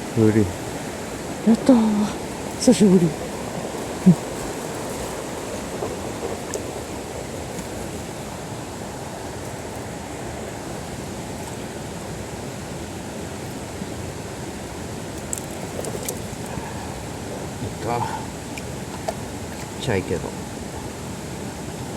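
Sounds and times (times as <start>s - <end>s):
stream water rushing: 0.0s - 21.9s.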